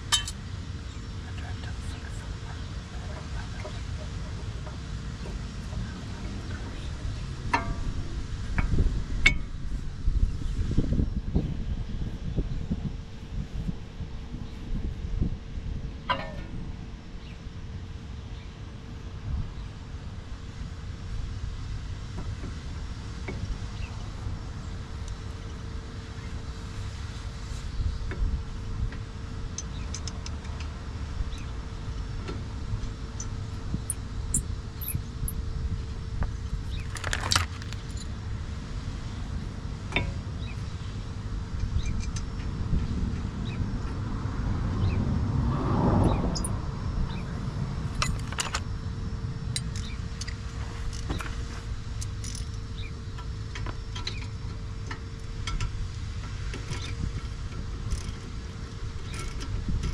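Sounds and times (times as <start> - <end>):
low background rumble: 0.0 - 59.9
metal parts clattering: 36.7 - 38.1
rush of noise: 42.9 - 50.3.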